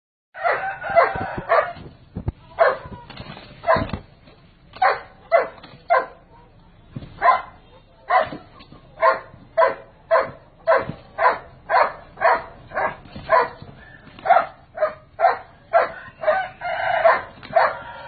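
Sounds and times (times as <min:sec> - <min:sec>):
dog barking: 0:00.4 - 0:01.8, 0:02.6 - 0:02.9, 0:03.6 - 0:03.9, 0:04.8 - 0:06.5, 0:07.2 - 0:18.0.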